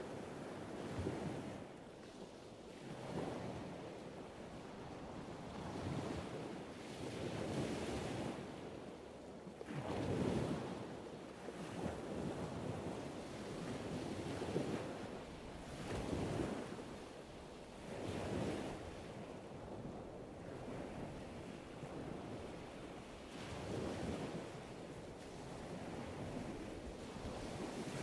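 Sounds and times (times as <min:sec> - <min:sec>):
wind: 0:00.0 - 0:28.0
waves washing in: 0:20.6 - 0:28.0.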